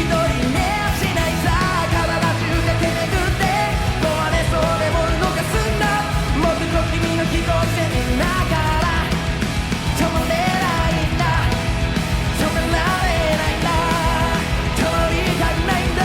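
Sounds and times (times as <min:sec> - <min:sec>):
live pop-rock band music: 0:00.0 - 0:16.0.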